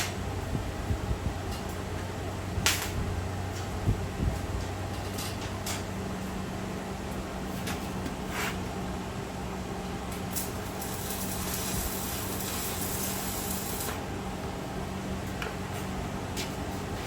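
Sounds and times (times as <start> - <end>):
electrical hum: 0.0 - 17.0
welding hissing crackle: 2.6 - 3.0, 10.1 - 14.1.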